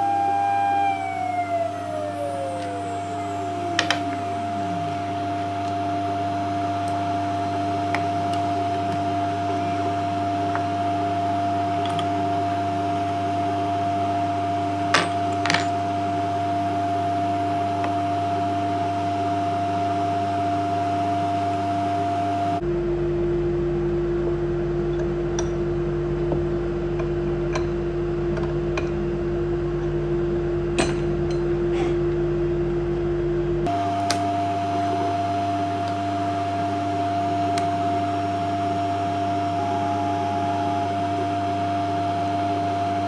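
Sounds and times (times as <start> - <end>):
spindle whine winding down: 0.0 - 14.8, 33.6 - 43.0
machine electrical hum: 0.0 - 43.0.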